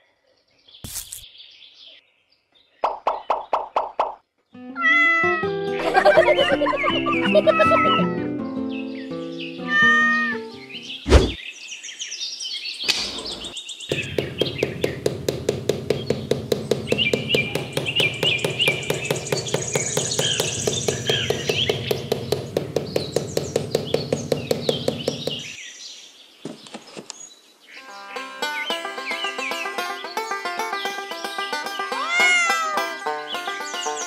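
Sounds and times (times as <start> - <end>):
birds chirping: 0.0 - 4.5, 5.6 - 34.0
sharp thunk: 11.1 - 11.4, 12.9 - 25.6
fast even tapping: 12.9 - 25.6.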